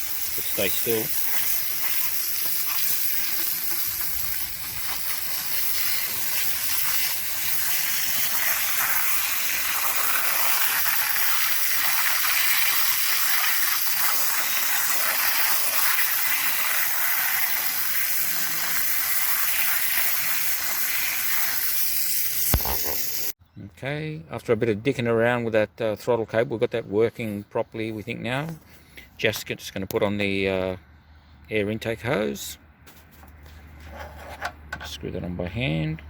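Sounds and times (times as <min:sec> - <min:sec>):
hose spraying water on metal parts: 0:00.0 - 0:23.4.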